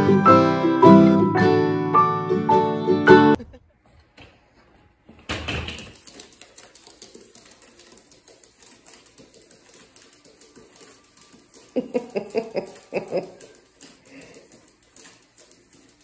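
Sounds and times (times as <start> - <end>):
lizard claws clicking on paper: 6.0 - 16.0.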